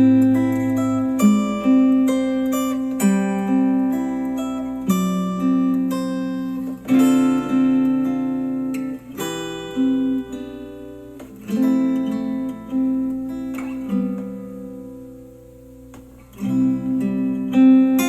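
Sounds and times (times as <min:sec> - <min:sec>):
acoustic guitar music through speaker: 0:00.0 - 0:18.0.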